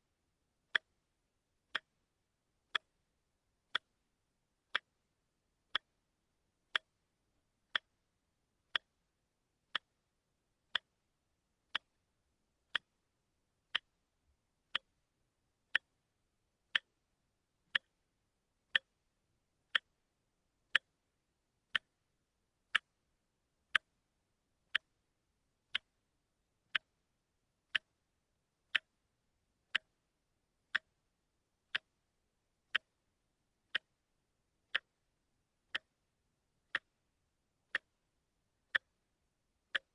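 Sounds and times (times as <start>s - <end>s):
watch ticking: 0.7s - 1.0s, 1.7s - 2.0s, 2.7s - 3.0s, 3.7s - 4.0s, 4.7s - 5.1s, 5.7s - 6.0s, 6.7s - 8.0s, 8.7s - 9.0s, 9.7s - 10.1s, 10.7s - 11.0s, 11.7s - 12.0s, 12.7s - 13.1s, 13.7s - 14.0s, 14.7s - 15.0s, 15.7s - 16.1s, 16.7s - 17.0s, 17.7s - 18.0s, 18.7s - 19.0s, 19.7s - 20.0s, 20.7s - 21.1s, 21.7s - 22.0s, 22.7s - 24.0s, 24.7s - 25.1s, 25.7s - 26.1s, 26.7s - 27.0s, 27.7s - 30.0s, 30.7s - 31.0s, 31.7s - 33.0s, 33.7s - 34.1s, 34.7s - 39.1s, 39.7s - 39.9s.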